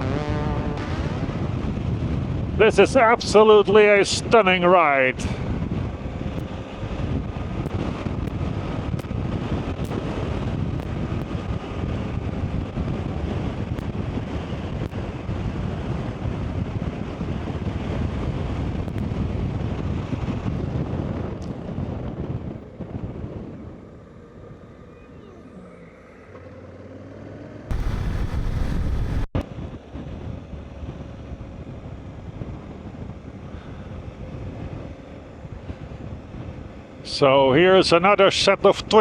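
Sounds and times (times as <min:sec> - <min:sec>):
motorcycle running: 0:00.0 - 0:02.6, 0:05.2 - 0:25.6, 0:26.3 - 0:29.4
wind buffeting microphone: 0:00.0 - 0:25.4, 0:27.7 - 0:37.8.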